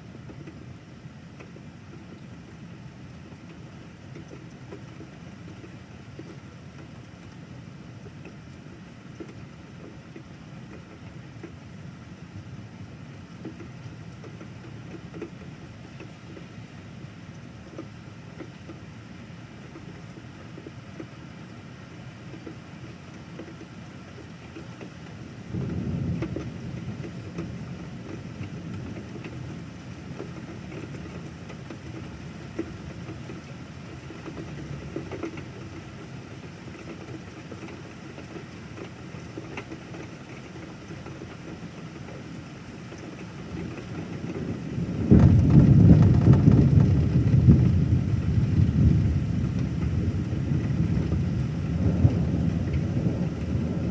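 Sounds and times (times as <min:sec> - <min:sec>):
steady rain: 0:00.0 - 0:53.9
thunder rumbling: 0:25.5 - 0:32.2, 0:43.5 - 0:53.9.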